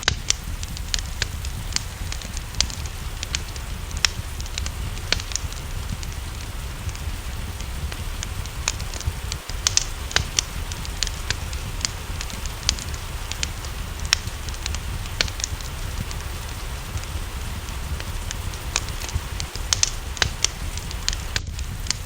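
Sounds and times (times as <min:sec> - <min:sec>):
faint hiss of rain: 0:00.0 - 0:22.0
low rumble: 0:00.0 - 0:22.0
wood fire crackling: 0:00.0 - 0:22.0.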